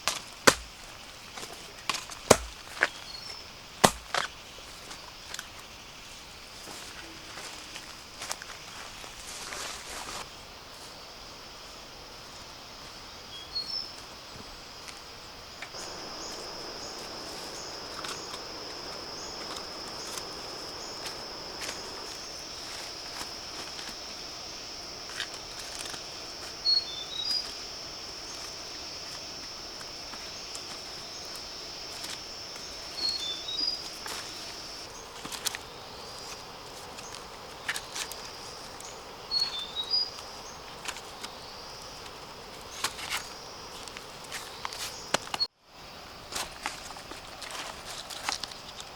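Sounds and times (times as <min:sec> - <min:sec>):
twigs snapping: 0:00.0 - 0:03.0, 0:15.6 - 0:41.4
footsteps in undergrowth: 0:00.0 - 0:10.3, 0:14.9 - 0:45.5, 0:46.2 - 0:48.9
rustling in undergrowth: 0:00.0 - 0:11.0, 0:12.8 - 0:45.5, 0:46.1 - 0:48.9
high-pitched insect drone: 0:15.6 - 0:45.1.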